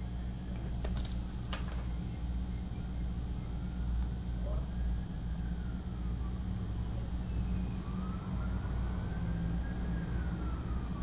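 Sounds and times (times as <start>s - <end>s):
steady low hum: 0.0s - 11.0s
faint siren wailing: 2.4s - 11.0s.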